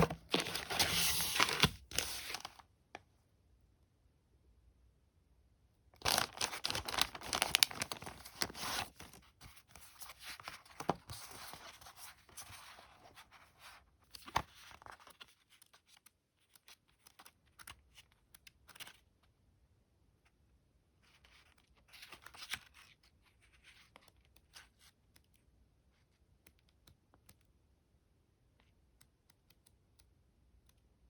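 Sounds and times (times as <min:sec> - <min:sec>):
tearing and rustling: 0:00.0 - 0:02.6.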